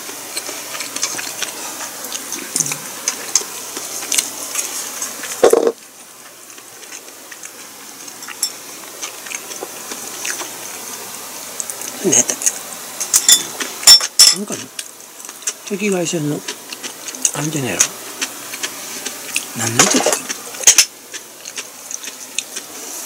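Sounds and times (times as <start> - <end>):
person chewing food: 0.0 - 13.8, 14.5 - 15.7, 16.4 - 23.0
background hiss: 0.0 - 23.0
wet mouth clicks: 2.1 - 3.2.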